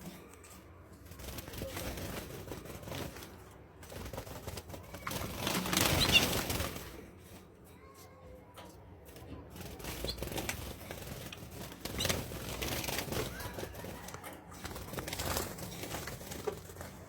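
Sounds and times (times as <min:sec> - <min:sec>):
birds flapping wings: 0:01.0 - 0:07.1, 0:09.5 - 0:17.0.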